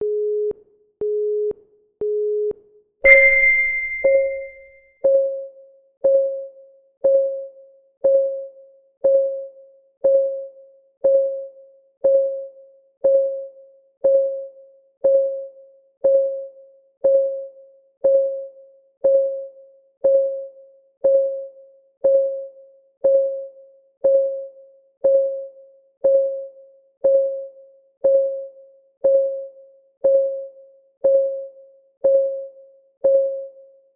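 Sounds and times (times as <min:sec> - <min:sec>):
bell-like chime: 0:03.1 - 0:04.6
short electronic beeps: 0:03.1 - 0:04.6
timer ticking tones: 0:03.1 - 0:04.6.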